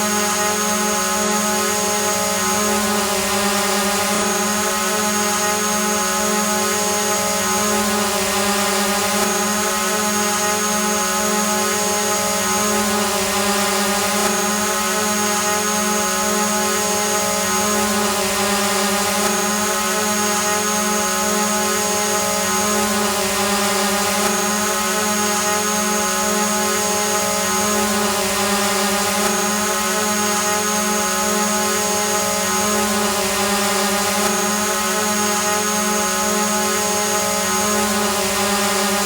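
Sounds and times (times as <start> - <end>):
drone propellers humming: 12.2 - 39.0.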